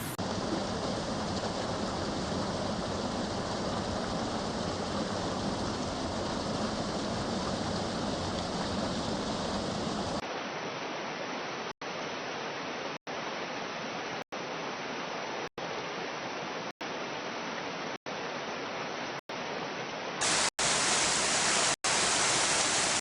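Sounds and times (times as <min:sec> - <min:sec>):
waterfall rushing: 0:00.0 - 0:10.2, 0:20.2 - 0:23.0.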